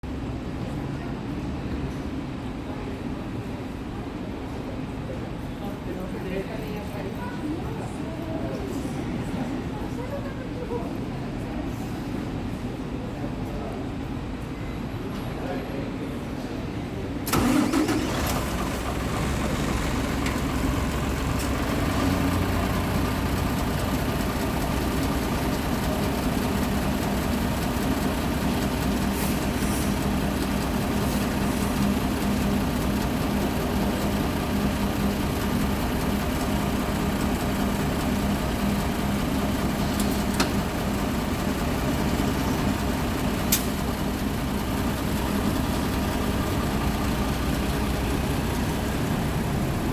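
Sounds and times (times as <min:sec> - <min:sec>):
bus diesel engine starting and idling: 0:17.2 - 0:49.9.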